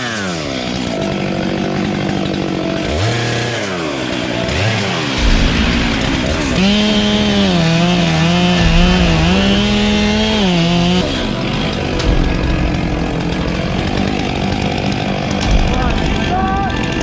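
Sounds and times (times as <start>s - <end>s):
chainsaw cutting wood: 0.0s - 17.0s.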